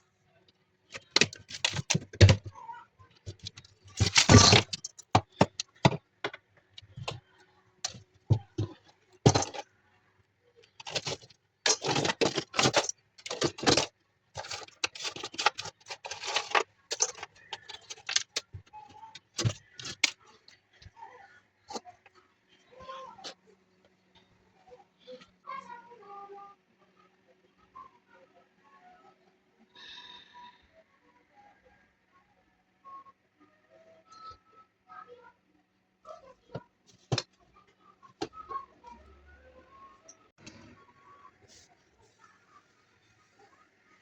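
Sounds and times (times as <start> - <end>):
hard objects clattering and knocking: 0.9 - 2.5, 3.3 - 7.2, 7.8 - 9.6, 10.8 - 20.2
ice scraping in a fridge: 0.9 - 2.5, 3.3 - 6.0, 7.9 - 9.6, 10.8 - 20.2.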